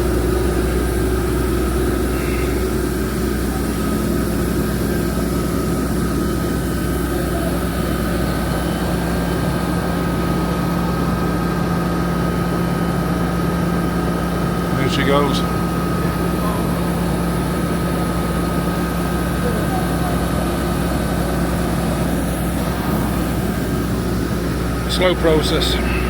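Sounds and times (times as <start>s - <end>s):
diesel engine hum: 0.0s - 26.0s
high hydraulic whine: 0.0s - 26.0s.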